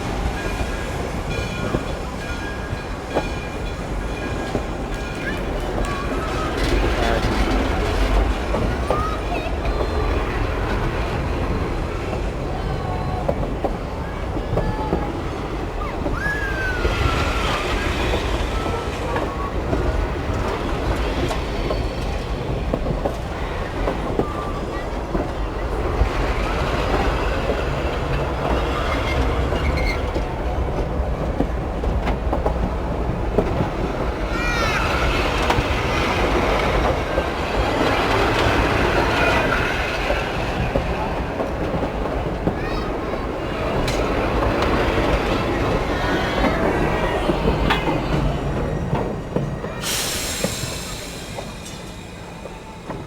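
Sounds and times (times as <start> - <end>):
train rumbling: 0.0 - 53.0
wheels clicking over rail joints: 0.0 - 53.0
high wheel squeal: 43.7 - 52.9.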